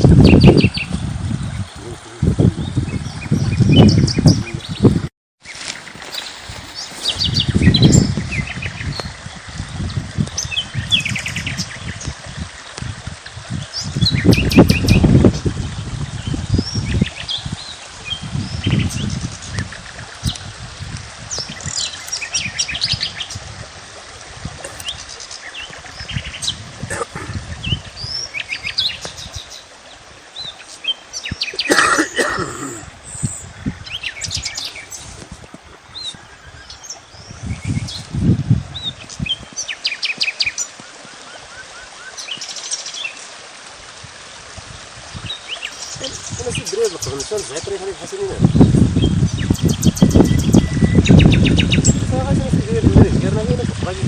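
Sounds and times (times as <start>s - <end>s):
small birds chirping: 0.2s - 9.2s, 13.6s - 20.4s, 21.3s - 23.5s, 24.6s - 32.0s, 32.6s - 35.3s, 35.9s - 43.2s, 45.1s - 52.3s.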